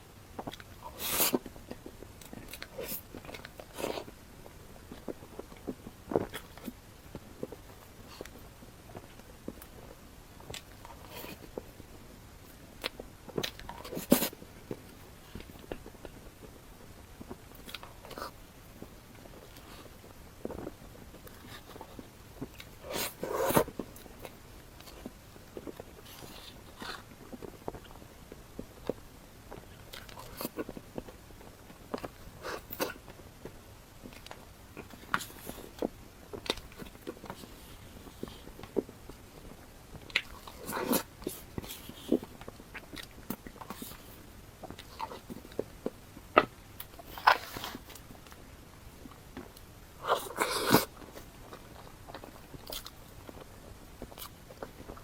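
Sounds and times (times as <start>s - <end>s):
chewing and mouth smacks: 0.4s - 55.0s
person biting and chewing: 50.0s - 53.4s.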